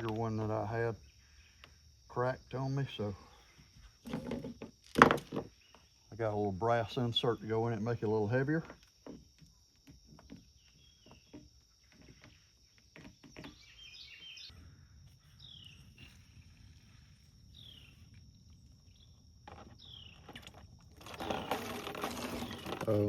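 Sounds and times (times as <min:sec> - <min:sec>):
bird chirping: 0:10.3 - 0:21.6.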